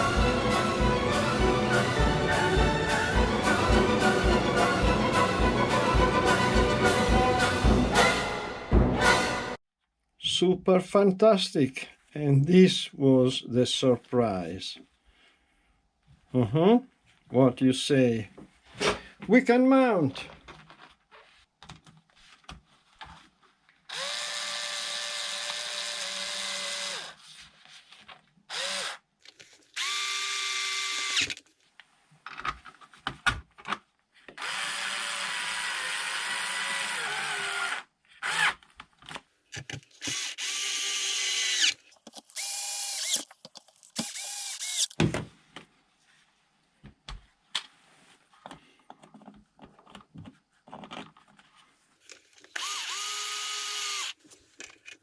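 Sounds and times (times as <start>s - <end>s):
power drill whining: 23.9s - 27.2s, 28.5s - 29.0s, 29.8s - 31.4s, 34.4s - 38.6s, 40.0s - 43.3s, 43.9s - 45.0s, 52.4s - 54.2s.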